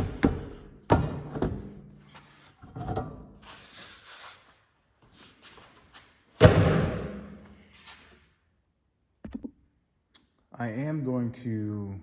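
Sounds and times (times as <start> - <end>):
loud clunk: 6.4 - 7.4.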